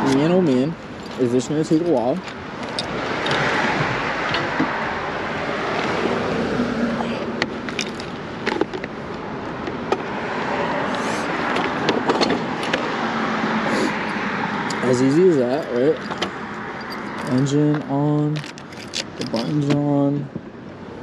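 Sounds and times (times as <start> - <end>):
sharp clicks and knocks: 0.0 - 4.8
street traffic: 0.0 - 21.0.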